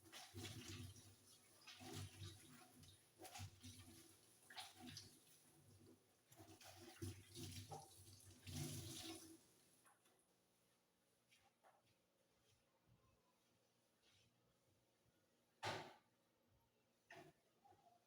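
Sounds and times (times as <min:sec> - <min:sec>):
window being scrubbed with water: 0:00.0 - 0:09.4.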